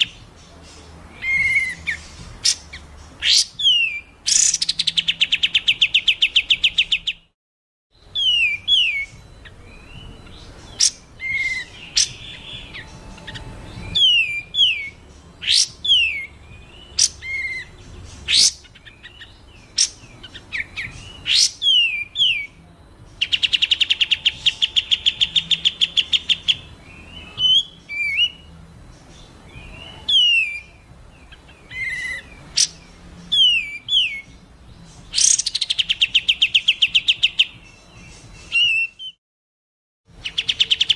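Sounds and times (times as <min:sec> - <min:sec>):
down-slurred bird whistles: 0:01.1 - 0:07.3, 0:08.0 - 0:22.6, 0:23.2 - 0:28.5, 0:31.6 - 0:34.4
buzzy bird trills: 0:08.0 - 0:39.1.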